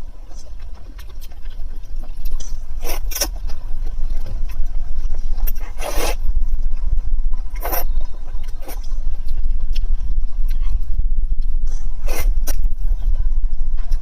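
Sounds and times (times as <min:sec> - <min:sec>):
chewing and slurping: 0:00.0 - 0:10.8
steady low rumble: 0:00.0 - 0:14.0.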